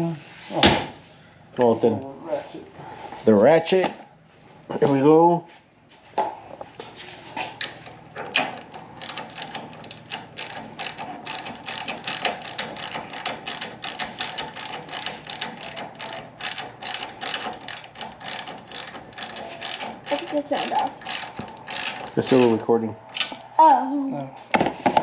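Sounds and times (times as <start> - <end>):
ratchet wrench clicking: 7.6 - 22.6.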